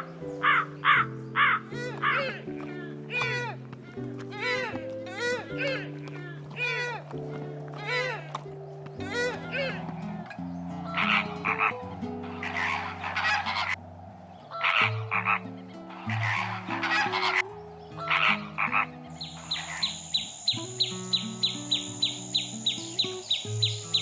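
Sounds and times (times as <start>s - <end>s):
frog croaking: 9.1s - 24.0s
fast even chirping: 9.6s - 24.0s.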